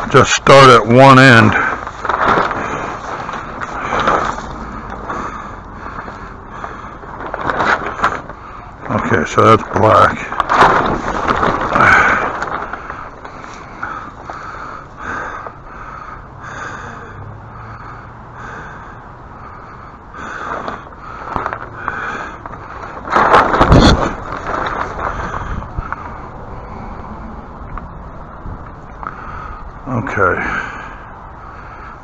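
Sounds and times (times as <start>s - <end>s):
large sheet crinkling and rustling: 0.0s - 16.1s, 19.6s - 26.8s.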